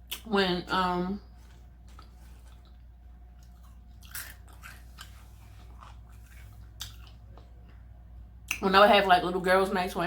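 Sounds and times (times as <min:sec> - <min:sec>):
person chewing food: 0:01.2 - 0:08.6.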